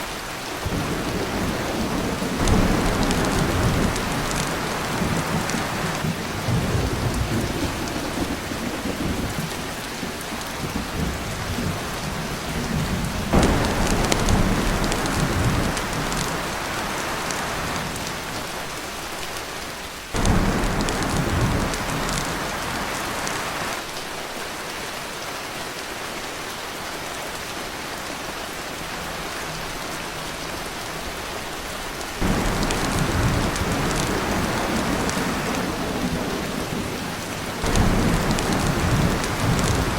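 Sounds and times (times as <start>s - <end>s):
rain on a tin roof: 0.0s - 39.9s
thunder rumbling: 0.6s - 18.6s, 20.2s - 23.7s, 32.2s - 39.9s.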